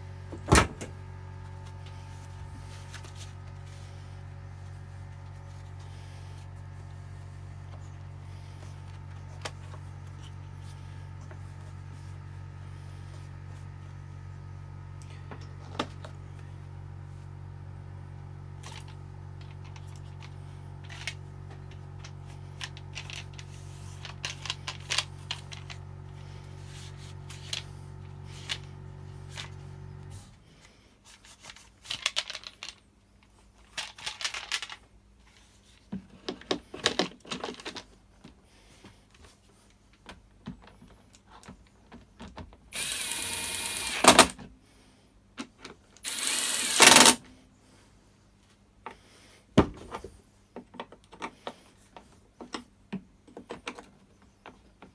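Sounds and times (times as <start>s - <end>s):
background hum: 0.0s - 54.9s
power screwdriver bursts: 42.8s - 44.4s, 46.0s - 47.2s.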